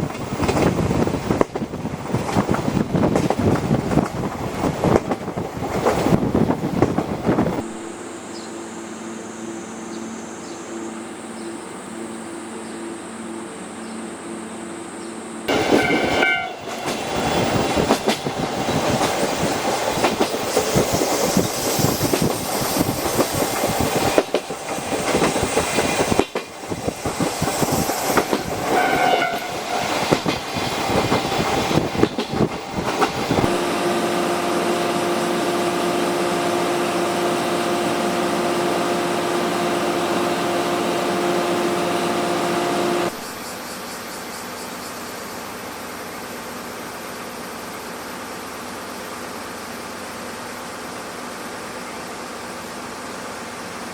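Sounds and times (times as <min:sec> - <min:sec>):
train rushing roar with rail clatter: 0:00.0 - 0:53.9
train horn: 0:15.5 - 0:17.0, 0:28.6 - 0:30.2, 0:33.4 - 0:43.2
steady hum: 0:33.3 - 0:43.2.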